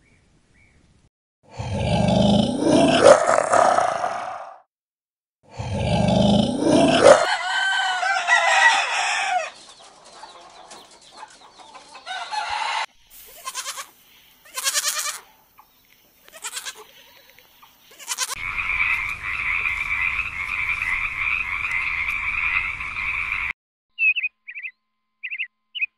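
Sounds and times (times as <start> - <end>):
animal call with gliding pitch: 1.9 - 4.6, 6.0 - 7.5
hens clucking: 6.8 - 13.9
croaking chorus: 17.9 - 23.5.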